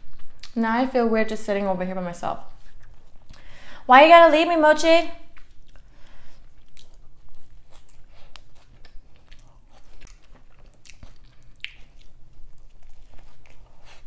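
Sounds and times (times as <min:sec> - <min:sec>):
close chewing and biting: 0:02.5 - 0:03.5, 0:05.3 - 0:14.0
wet mouth clicks and smacks: 0:07.8 - 0:12.2.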